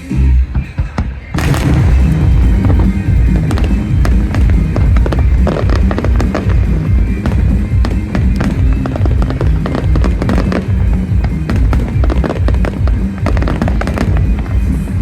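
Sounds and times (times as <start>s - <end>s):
fireworks crackling bursts: 0.0s - 15.0s
loud music with heavy bass: 0.0s - 15.0s.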